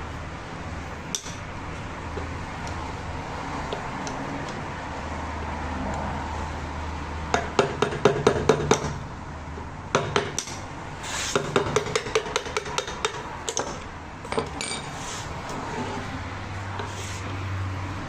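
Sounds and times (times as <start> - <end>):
steady low hum: 0.0 - 18.0
metal tools clinking: 14.3 - 15.0.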